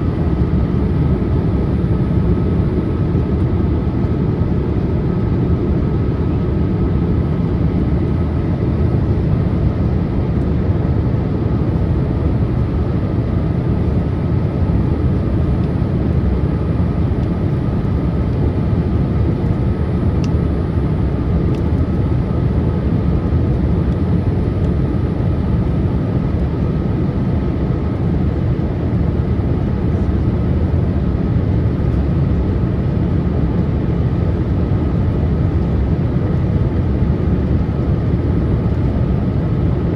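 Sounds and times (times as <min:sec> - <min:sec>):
aircraft cabin airflow rush: 0:00.0 - 0:39.9
jet engines droning: 0:00.0 - 0:39.9.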